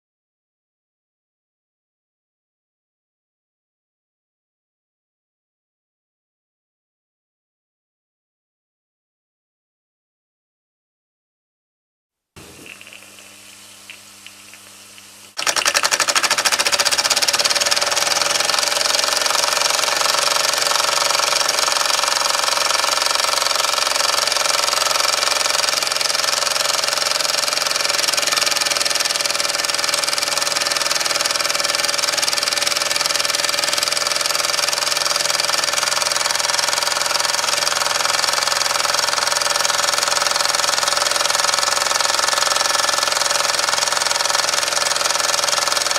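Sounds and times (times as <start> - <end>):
steam hiss: 12.4 - 15.4
model steam engine clatter: 15.4 - 45.9.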